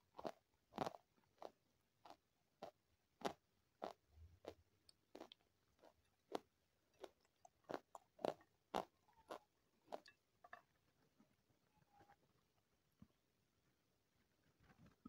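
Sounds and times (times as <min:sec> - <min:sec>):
crisp food crunching: 0:00.1 - 0:11.1.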